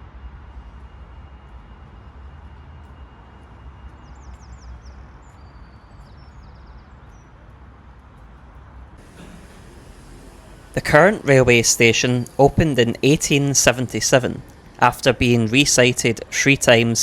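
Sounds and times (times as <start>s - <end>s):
outdoor background rumble: 7.8s - 17.0s.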